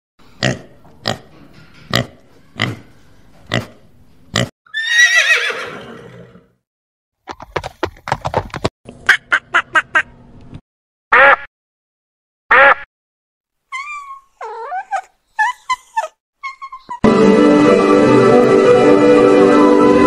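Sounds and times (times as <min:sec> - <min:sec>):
horse whinnying: 0:04.7 - 0:06.5.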